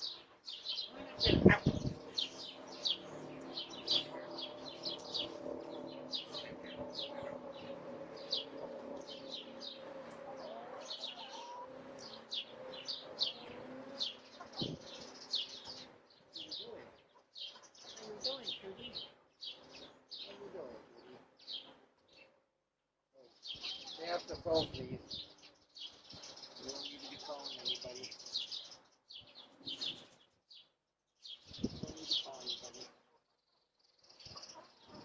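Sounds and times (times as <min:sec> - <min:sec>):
low steady drone: 0:00.0 - 0:17.0
small birds chirping: 0:00.0 - 0:22.6, 0:23.2 - 0:35.0.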